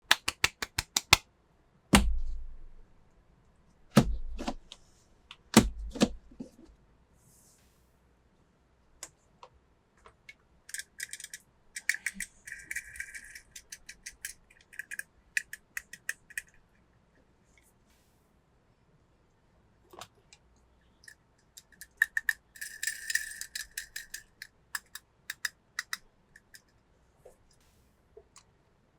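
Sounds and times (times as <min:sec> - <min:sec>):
toy cars clicking: 0:10.7 - 0:16.8, 0:21.0 - 0:26.8.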